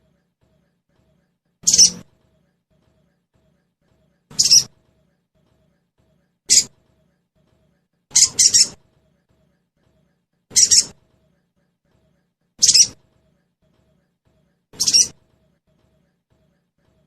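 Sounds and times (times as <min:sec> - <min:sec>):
bird chirping calls: 0:01.6 - 0:02.0, 0:04.3 - 0:04.7, 0:06.5 - 0:06.7, 0:08.1 - 0:08.8, 0:10.5 - 0:11.0, 0:12.6 - 0:13.0, 0:14.8 - 0:15.2.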